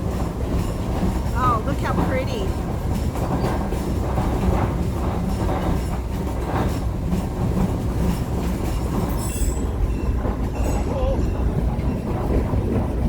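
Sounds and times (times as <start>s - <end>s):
train rumbling along track: 0.0s - 13.0s
wheel clacks: 0.0s - 13.0s.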